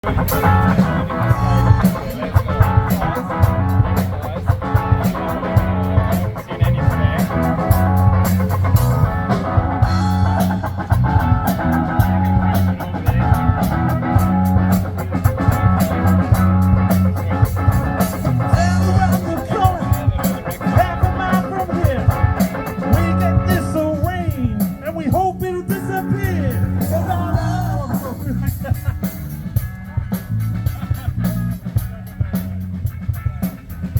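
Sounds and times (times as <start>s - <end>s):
lead guitar bent notes: 0.0s - 33.9s
rock band playing live: 0.0s - 33.9s.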